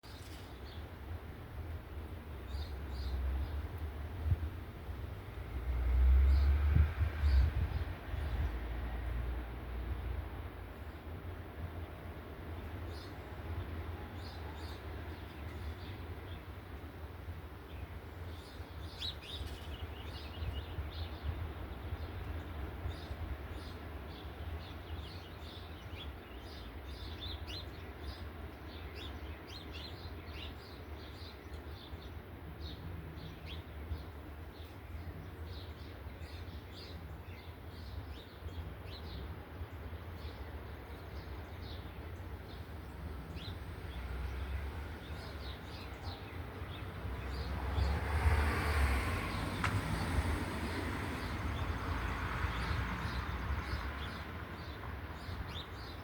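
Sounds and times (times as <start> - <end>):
small birds chirping: 17.6 - 48.1, 51.1 - 56.0.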